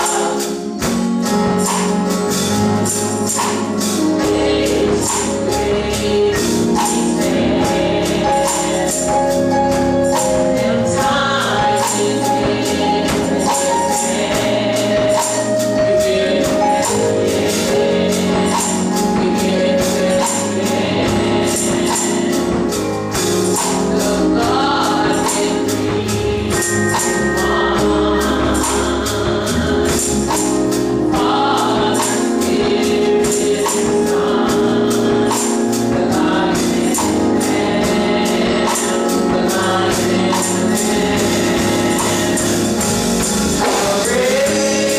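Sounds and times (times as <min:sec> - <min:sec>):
church choir singing: 0:00.0 - 0:44.9
tambourine jingling: 0:24.6 - 0:35.8.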